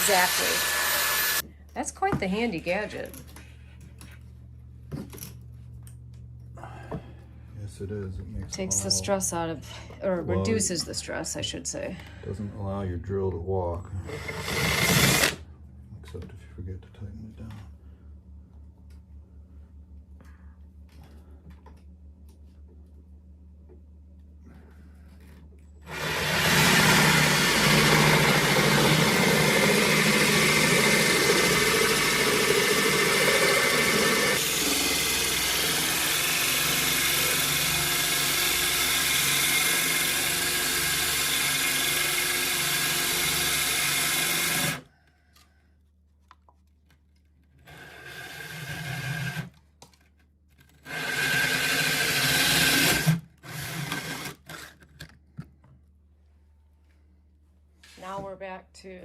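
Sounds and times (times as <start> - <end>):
electric drill boring through tile: 0.0 - 1.5, 14.1 - 15.4, 25.9 - 44.9, 47.6 - 49.6, 50.8 - 54.8.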